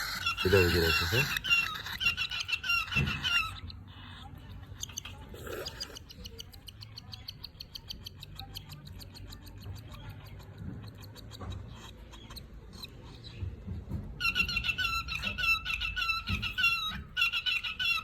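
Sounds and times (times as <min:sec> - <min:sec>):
parrot harsh call: 0:00.0 - 0:03.6
parrots chirping: 0:00.0 - 0:13.5, 0:14.2 - 0:18.0.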